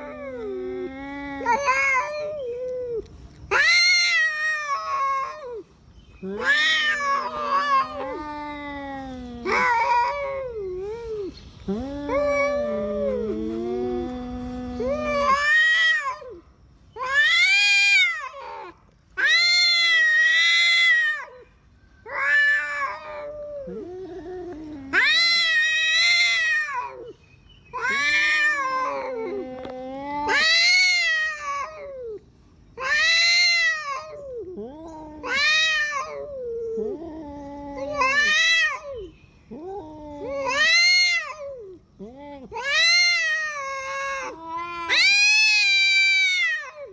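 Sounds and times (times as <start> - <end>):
cats growling: 0.0 - 16.4, 17.0 - 46.9
cats yowling: 0.0 - 16.4, 17.0 - 46.9.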